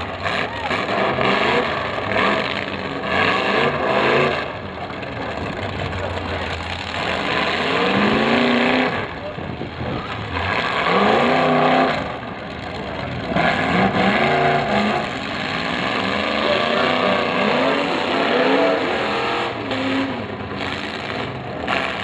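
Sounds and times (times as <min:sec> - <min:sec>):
car engines revving hard: 0:00.0 - 0:22.0.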